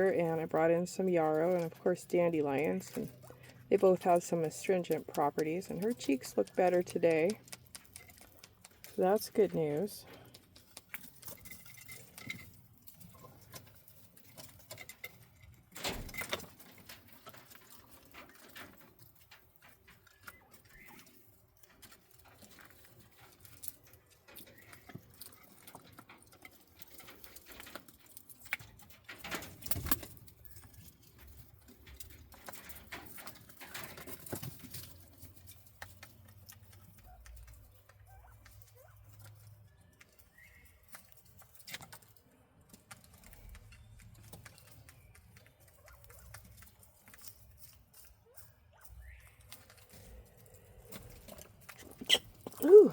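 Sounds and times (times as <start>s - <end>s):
quail scratching and pecking: 0.0s - 52.9s
soft bird chirps: 20.0s - 21.3s, 37.7s - 41.0s.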